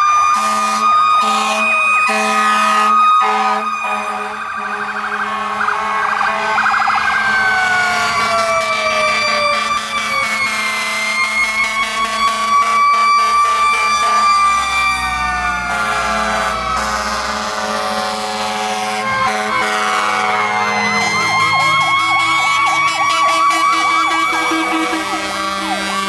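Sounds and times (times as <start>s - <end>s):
truck engine rumble: 0.0s - 26.0s
wailing fire truck siren: 0.0s - 26.0s
yelp siren: 0.0s - 26.0s.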